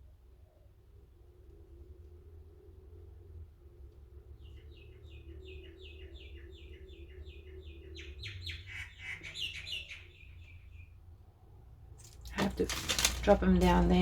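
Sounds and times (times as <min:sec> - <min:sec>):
low steady hum: 0:00.0 - 0:08.7
bird singing: 0:04.2 - 0:11.1.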